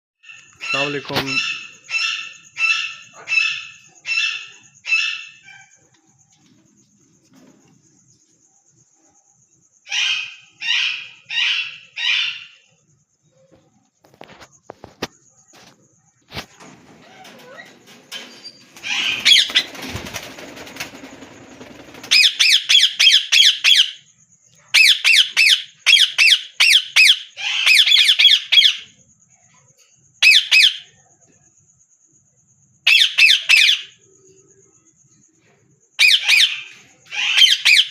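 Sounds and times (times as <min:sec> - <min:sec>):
parakeets squawking: 0:00.2 - 0:05.6, 0:18.8 - 0:19.7, 0:22.1 - 0:23.9, 0:36.0 - 0:37.9
rustling noise: 0:13.6 - 0:19.0.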